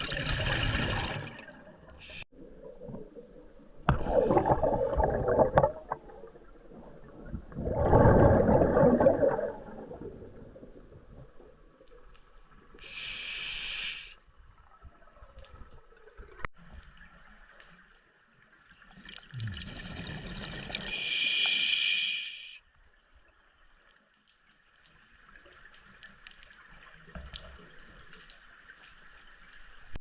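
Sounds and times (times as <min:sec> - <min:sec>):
exhaled bubbles underwater: 0:00.0 - 0:11.7
regulator inhalation hiss: 0:12.8 - 0:14.2, 0:20.9 - 0:22.6.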